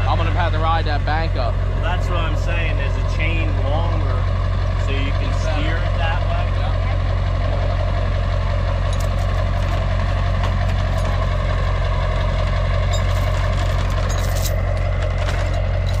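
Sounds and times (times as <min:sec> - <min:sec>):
vehicle engine idling: 0:00.0 - 0:16.0
light clicks and rattles: 0:12.9 - 0:16.0.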